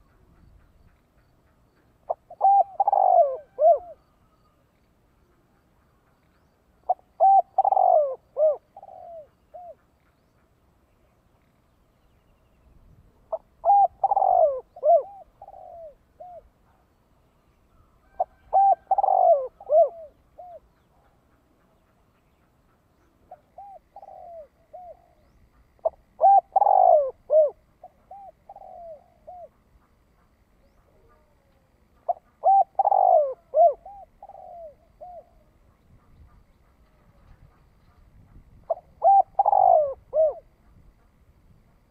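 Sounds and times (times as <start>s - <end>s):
dove cooing: 2.0s - 4.6s, 6.8s - 9.9s, 13.2s - 16.8s, 17.7s - 21.7s, 23.0s - 29.6s, 30.2s - 40.9s.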